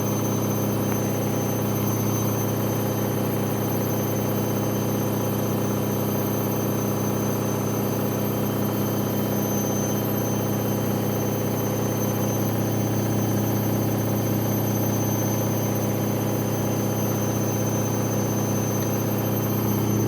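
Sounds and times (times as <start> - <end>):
washing machine spinning: 0.0 - 20.0.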